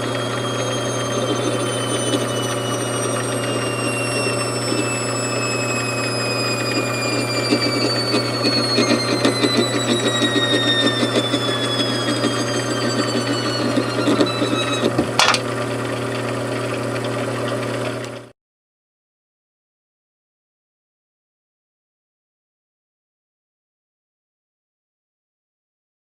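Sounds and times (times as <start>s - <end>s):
machine tool humming and whining: 0.0s - 18.3s.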